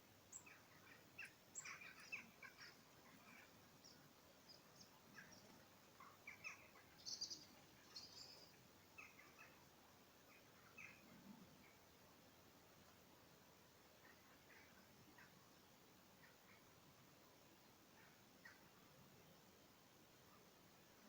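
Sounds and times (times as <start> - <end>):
faint bird chirps: 0.2 - 11.9, 14.0 - 16.8, 17.7 - 18.8.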